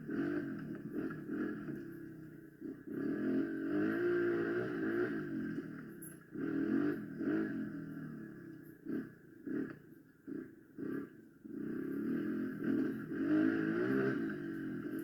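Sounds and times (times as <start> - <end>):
small motorcycle engine revving: 0.0 - 15.0.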